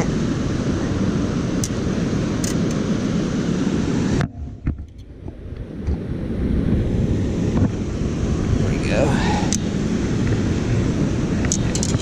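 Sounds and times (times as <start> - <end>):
wind on microphone: 0.0 - 12.0
water rushing at a dam: 6.9 - 12.0.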